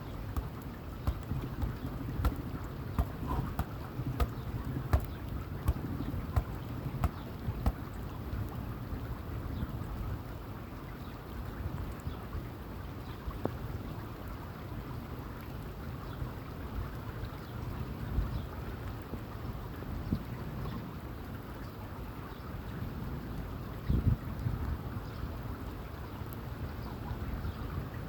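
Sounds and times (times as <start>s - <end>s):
wind buffeting microphone: 0.0s - 10.3s
sharp knocks: 0.4s - 7.9s.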